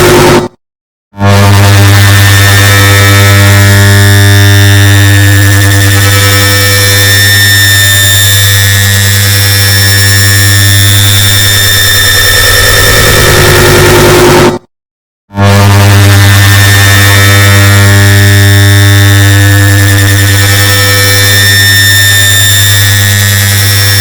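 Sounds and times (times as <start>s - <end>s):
higher tone: 0.0s - 0.6s, 15.4s - 24.0s.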